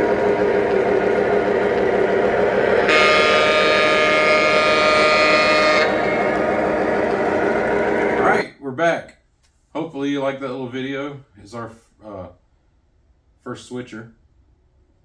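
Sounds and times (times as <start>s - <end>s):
train horn blast: 0.0s - 8.4s
model train engine rumble: 0.0s - 8.5s.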